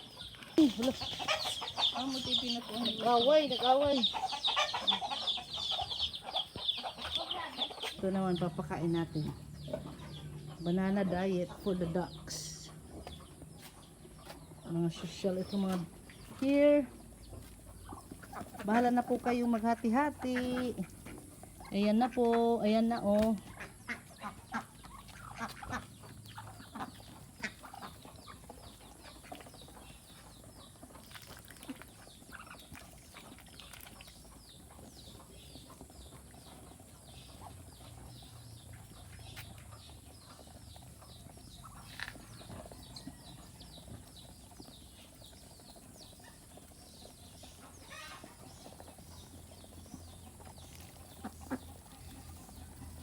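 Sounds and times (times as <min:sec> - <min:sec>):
ducks pecking clicks: 0:17.2 - 0:53.0.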